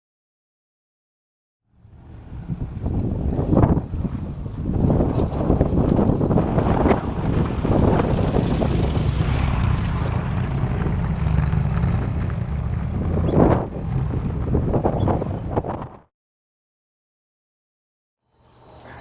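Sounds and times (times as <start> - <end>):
strong wind buffeting microphone: 1.8 - 16.1.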